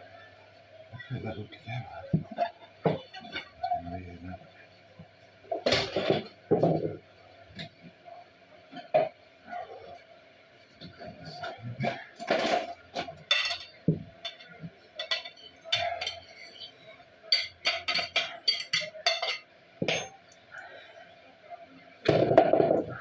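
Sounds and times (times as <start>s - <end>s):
dishes and cutlery clattering: 5.6s - 6.9s, 11.4s - 16.5s, 17.3s - 20.2s.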